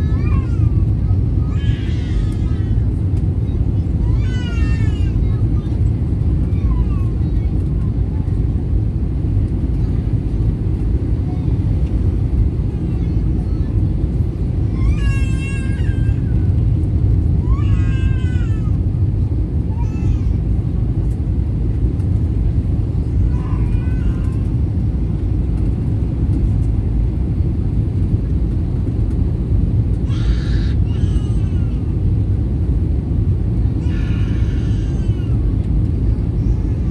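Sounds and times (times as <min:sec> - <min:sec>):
small child crying out: 0:00.0 - 0:00.9, 0:01.5 - 0:02.9, 0:04.0 - 0:05.2, 0:14.6 - 0:16.5, 0:17.4 - 0:18.8, 0:23.3 - 0:24.5, 0:30.0 - 0:32.0, 0:33.8 - 0:35.6
airplane cabin rumble: 0:00.0 - 0:36.9.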